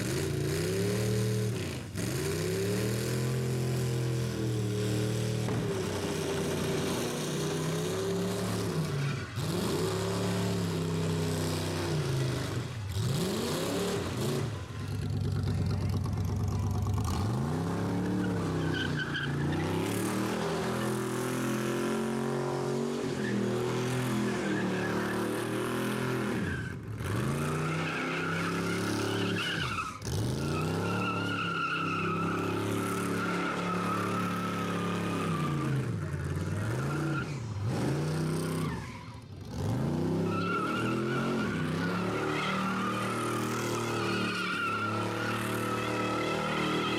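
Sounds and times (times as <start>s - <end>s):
tyres squealing: 40.3s - 46.9s.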